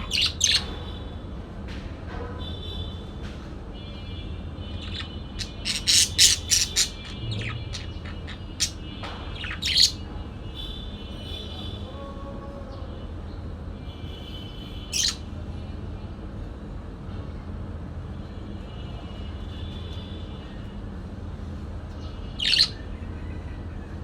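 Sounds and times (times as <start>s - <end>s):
parakeet chattering: 0.0s - 0.8s, 4.7s - 10.1s, 14.9s - 15.2s, 22.4s - 22.8s
parakeet squawks: 0.0s - 0.9s, 4.7s - 10.1s, 14.9s - 15.2s, 22.3s - 22.8s.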